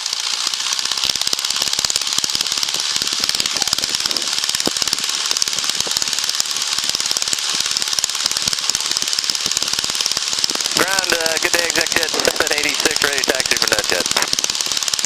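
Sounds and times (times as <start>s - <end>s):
airplane piston engine running: 0.0s - 15.0s.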